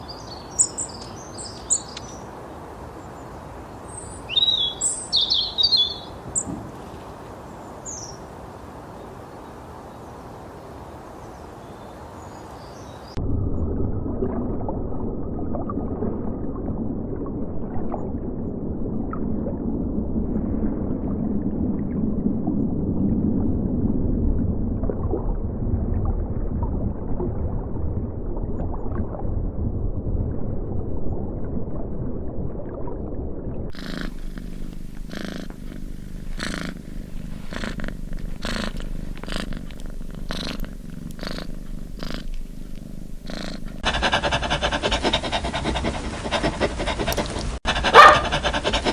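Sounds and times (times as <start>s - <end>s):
animal purring: 33.7s - 48.9s
breathy strokes: 33.7s - 48.9s.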